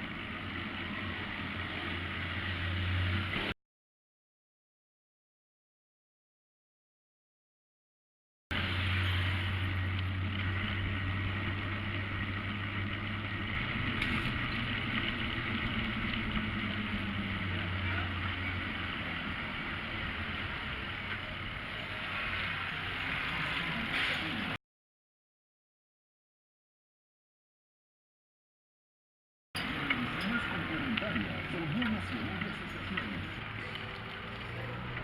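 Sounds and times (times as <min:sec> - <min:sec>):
vehicle engine humming: 0:00.0 - 0:03.5, 0:08.5 - 0:24.6, 0:29.6 - 0:35.0
road noise: 0:00.0 - 0:03.6, 0:08.5 - 0:24.6, 0:29.6 - 0:35.0.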